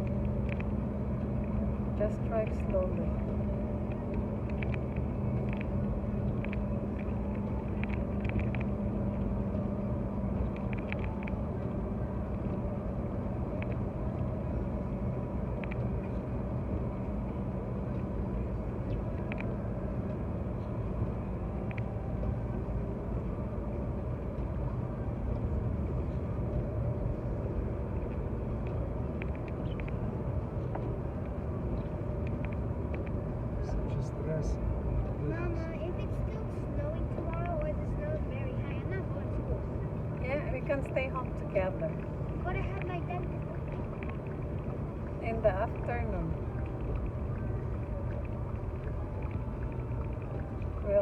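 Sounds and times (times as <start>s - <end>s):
faint ticks: 0.0s - 1.8s, 2.4s - 14.4s, 15.4s - 33.8s, 35.6s - 39.3s
car engine and road rumble: 0.0s - 51.0s.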